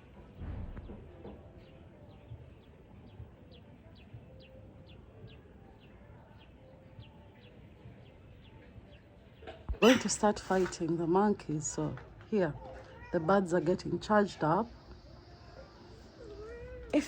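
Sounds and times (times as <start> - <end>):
background hiss: 13.2 - 17.0.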